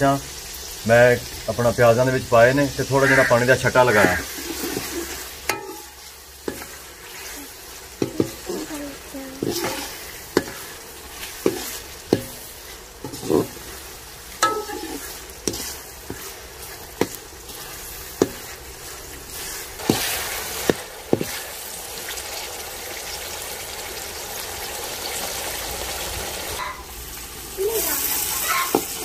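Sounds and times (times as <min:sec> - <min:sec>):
vegetables sizzling in oil: 0:00.0 - 0:29.0
spoon knocking against pan: 0:05.5 - 0:05.9, 0:11.4 - 0:12.4, 0:14.4 - 0:15.6.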